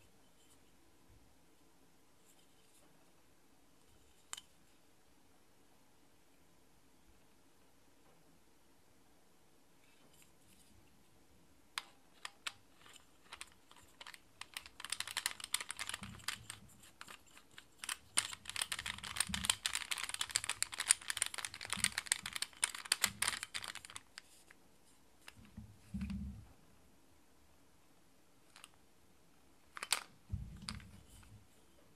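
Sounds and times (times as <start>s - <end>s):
rapid clicking and scraping: 11.8s - 24.5s
small plastic clicks: 11.8s - 24.5s, 28.5s - 28.8s, 29.7s - 31.3s.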